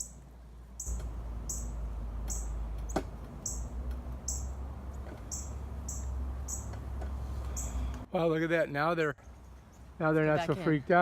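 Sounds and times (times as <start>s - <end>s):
baby birds cheeping: 0.0s - 0.2s, 0.8s - 6.8s, 7.4s - 7.9s.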